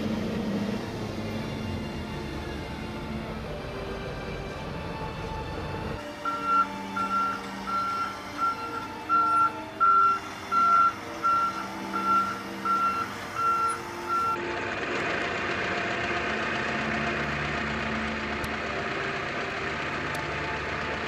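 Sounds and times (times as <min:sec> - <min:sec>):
engine running: 0:00.0 - 0:21.0
reversing alarm beeping: 0:06.0 - 0:14.4.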